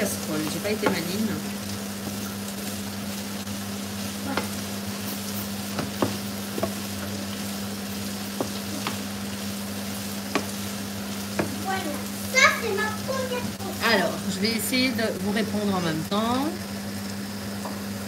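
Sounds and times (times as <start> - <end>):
courgettes sizzling in frying pan: 0.0 - 18.0
wooden spatula knocking on pan: 0.3 - 1.2, 5.7 - 7.2, 8.3 - 9.1, 10.2 - 10.6, 11.2 - 11.8.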